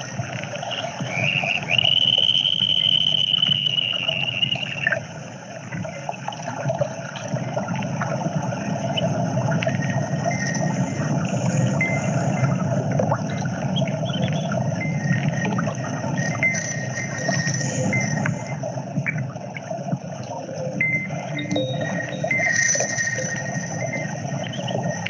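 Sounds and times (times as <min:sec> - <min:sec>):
water-like rush: 0:00.0 - 0:25.0
long high held tone: 0:20.8 - 0:24.3.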